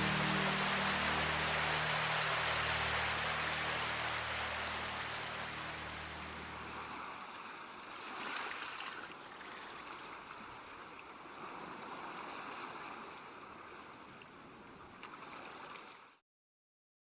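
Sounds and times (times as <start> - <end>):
water rushing: 0.0 - 9.8.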